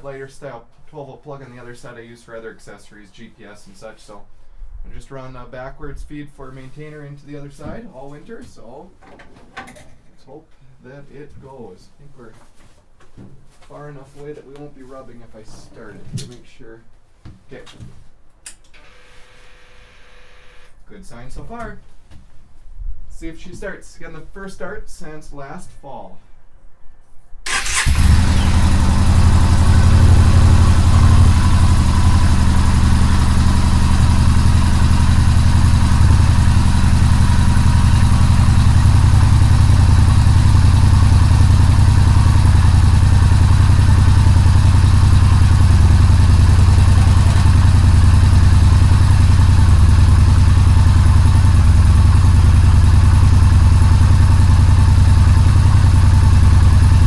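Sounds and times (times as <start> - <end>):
motorcycle engine idling: 27.5 - 57.0.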